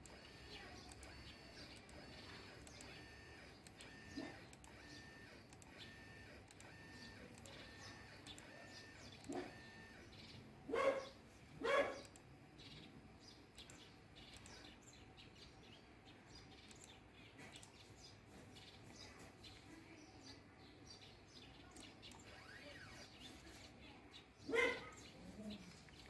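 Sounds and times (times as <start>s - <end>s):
faint bird chirps: 0.0s - 26.0s
dog barking: 4.2s - 4.4s, 9.2s - 9.7s, 10.7s - 12.1s, 24.4s - 25.6s.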